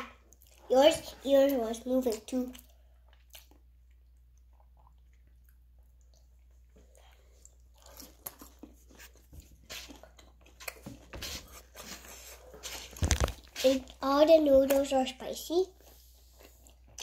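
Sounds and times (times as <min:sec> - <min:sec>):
person chewing food: 0:02.5 - 0:14.0, 0:15.8 - 0:17.0.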